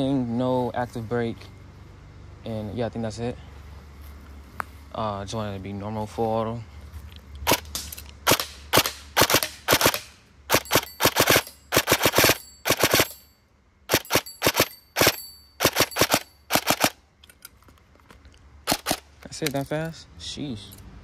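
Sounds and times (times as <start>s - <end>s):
airsoft gun firing bursts: 8.2s - 13.2s, 13.9s - 17.0s, 18.7s - 19.0s.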